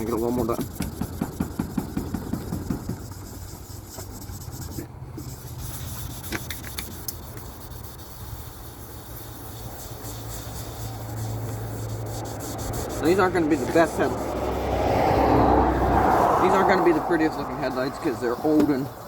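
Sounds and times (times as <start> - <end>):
rag wiping plastic lens: 0.0 - 14.7.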